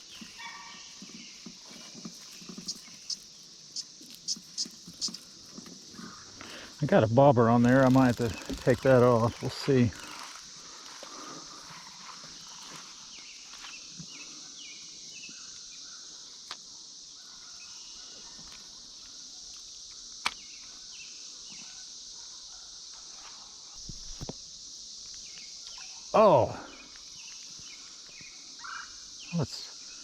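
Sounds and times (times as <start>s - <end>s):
cicada chorus drone: 0.0s - 30.0s.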